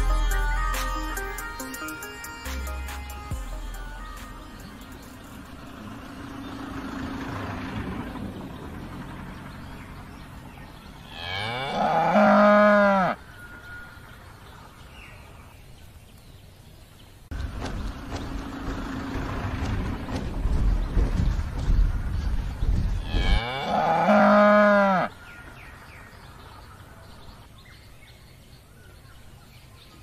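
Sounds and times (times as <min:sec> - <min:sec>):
steady background noise: 0:01.6 - 0:30.0
cow mooing: 0:11.0 - 0:13.9, 0:23.0 - 0:25.2.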